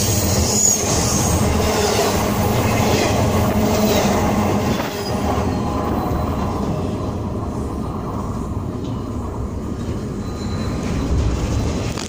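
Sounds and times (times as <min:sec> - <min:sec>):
freight cars rumbling on rails: 0:00.0 - 0:12.0.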